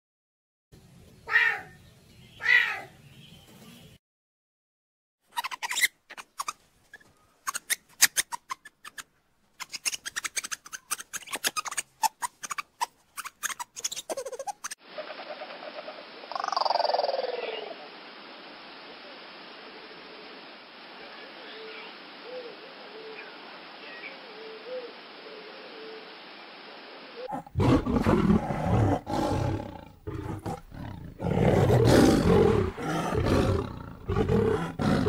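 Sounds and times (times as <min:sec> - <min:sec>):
animal clicking chatter: 0:09.6 - 0:14.8
steady hiss: 0:14.8 - 0:35.0.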